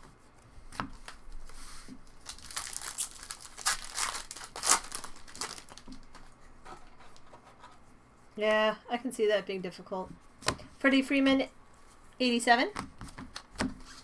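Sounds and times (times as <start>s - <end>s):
foil wrapper tearing and crinkling: 2.2s - 6.2s.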